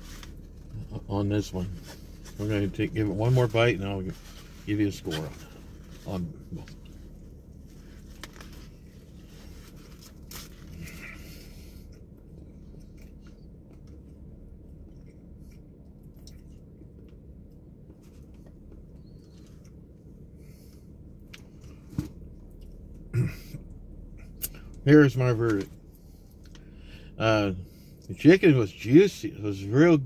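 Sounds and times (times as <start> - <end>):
steady low hum: 0.0 - 30.0
person chewing crispy food: 6.6 - 23.1.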